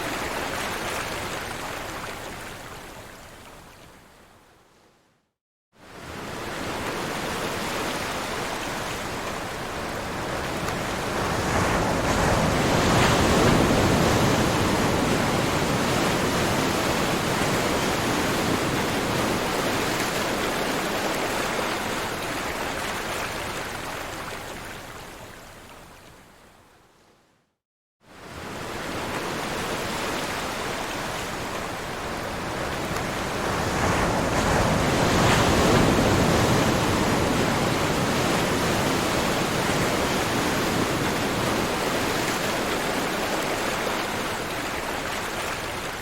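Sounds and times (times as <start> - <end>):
ocean waves breaking: 6.3 - 23.8, 28.2 - 46.0.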